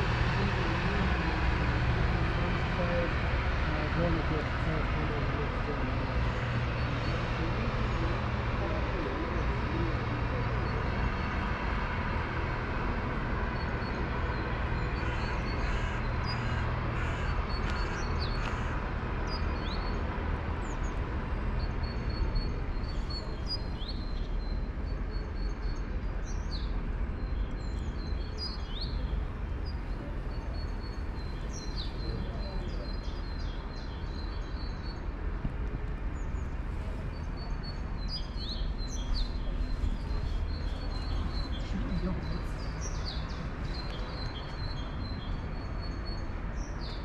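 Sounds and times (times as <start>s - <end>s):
small birds chirping: 21.6s - 35.2s, 36.0s - 47.0s.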